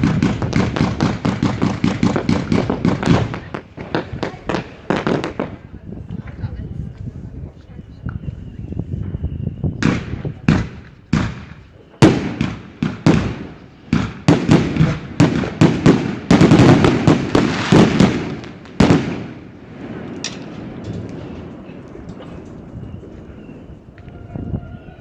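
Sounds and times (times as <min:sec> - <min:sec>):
fireworks bangs with echo: 0:00.0 - 0:06.5, 0:09.0 - 0:23.2.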